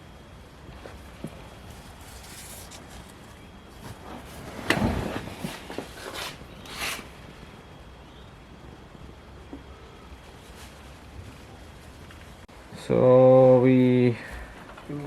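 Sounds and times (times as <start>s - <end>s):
scraping rustles: 0.7s - 7.4s, 9.6s - 12.5s.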